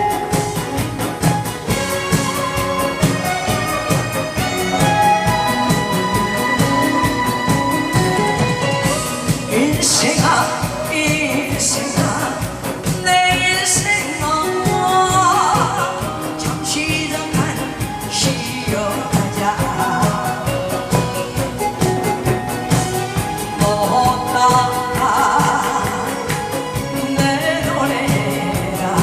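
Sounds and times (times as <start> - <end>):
backing track with steady beat: 0.0 - 29.0
person singing: 0.0 - 29.0.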